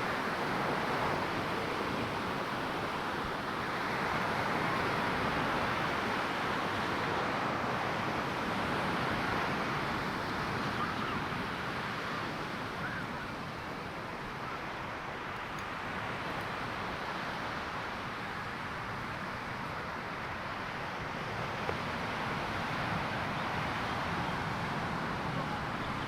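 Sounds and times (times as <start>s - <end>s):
ocean waves breaking on beach: 0.0s - 26.0s.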